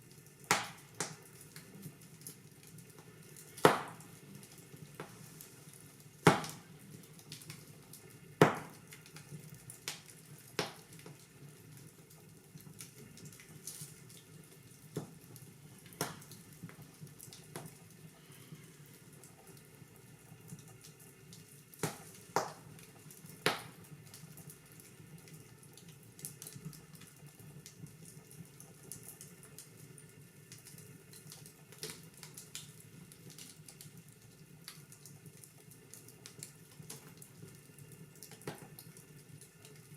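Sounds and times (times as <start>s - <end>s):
wood fire crackling: 0.0s - 39.9s
loud pops of fire: 0.5s - 1.2s, 3.5s - 4.1s, 6.2s - 6.7s, 8.4s - 8.8s, 15.9s - 16.4s.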